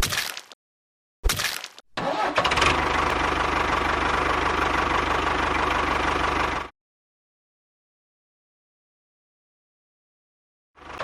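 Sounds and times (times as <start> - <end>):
small engine starting and running: 2.0 - 6.7, 10.8 - 11.0.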